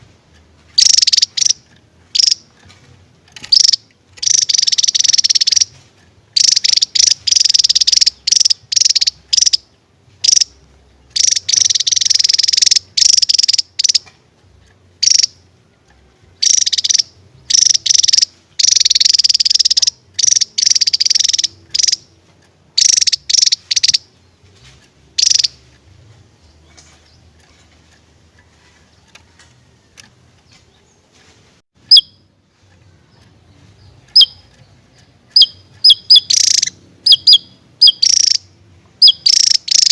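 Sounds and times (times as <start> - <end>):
bird buzzy trilled song: 0.0 - 39.9
short high bird chirps: 0.8 - 2.5, 3.4 - 5.8, 6.4 - 14.1, 15.0 - 15.4, 16.4 - 22.1, 22.8 - 24.4, 25.2 - 25.8, 31.8 - 32.4, 33.1 - 39.9.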